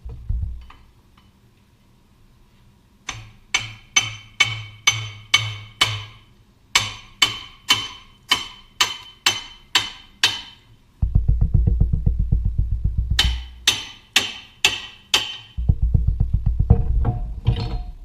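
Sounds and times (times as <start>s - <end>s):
hammer tapping on steel: 3.1s - 10.6s, 13.1s - 15.7s.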